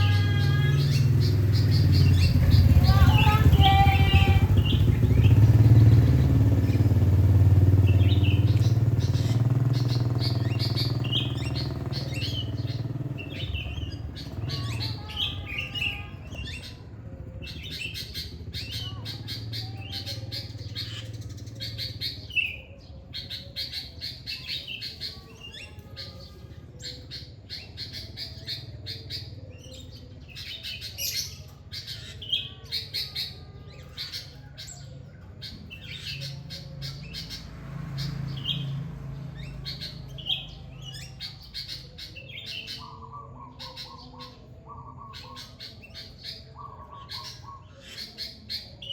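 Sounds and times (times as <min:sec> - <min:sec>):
songbirds chirping: 0:00.0 - 0:48.9
vehicle engine hum: 0:00.0 - 0:48.9.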